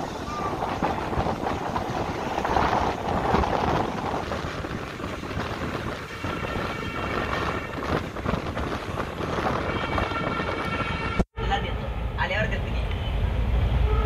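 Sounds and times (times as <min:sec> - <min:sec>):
train wheels rumbling on rails: 0:00.0 - 0:11.2
wind rushing over microphone: 0:00.0 - 0:11.2.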